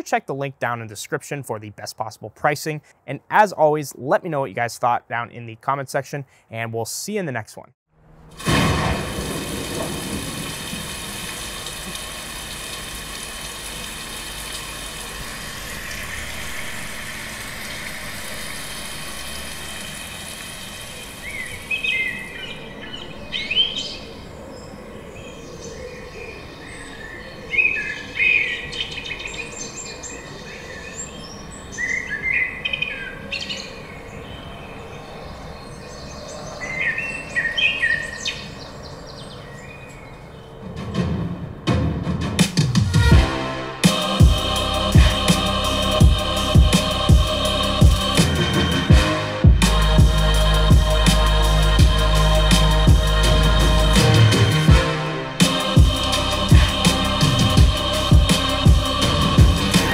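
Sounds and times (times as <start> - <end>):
steady hiss: 8.4 - 22.4, 49.6 - 54.7
small birds chirping: 19.7 - 40.6.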